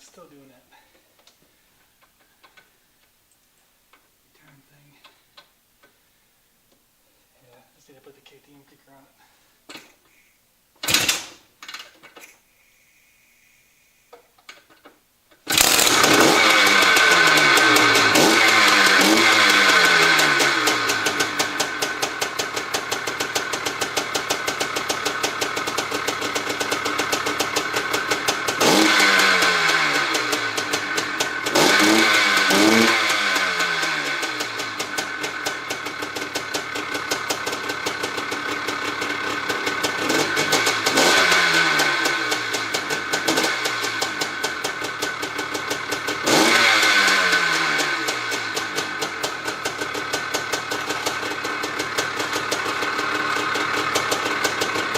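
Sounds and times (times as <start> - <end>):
two-stroke engine revving: 15.5 - 54.9.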